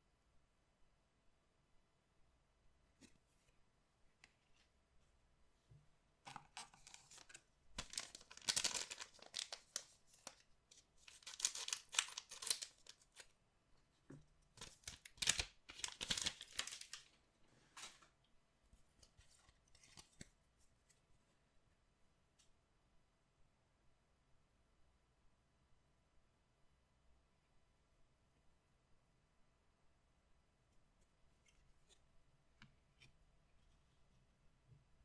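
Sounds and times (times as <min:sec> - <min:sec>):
packaging crinkling: 0:06.3 - 0:10.4, 0:11.0 - 0:13.2, 0:14.6 - 0:17.1
packaging tearing and rustling: 0:06.3 - 0:10.4, 0:11.0 - 0:13.2, 0:14.6 - 0:17.1.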